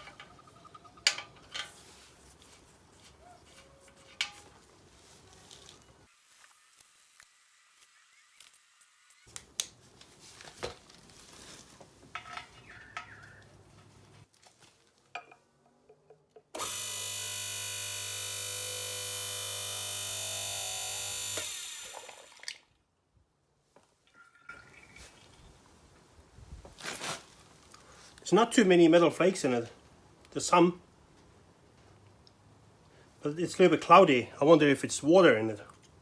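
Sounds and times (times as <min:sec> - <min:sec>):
electric motor running: 0:16.6 - 0:22.4.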